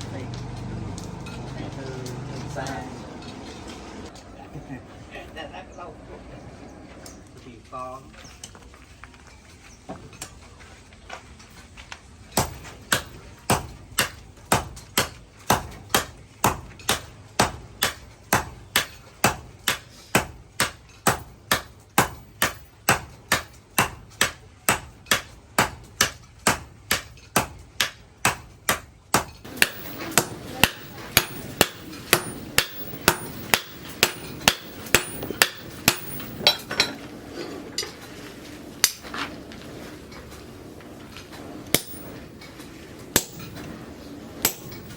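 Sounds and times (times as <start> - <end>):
hammer striking metal on anvil: 12.4 - 37.0, 41.7 - 42.3, 43.1 - 43.8, 44.4 - 44.9.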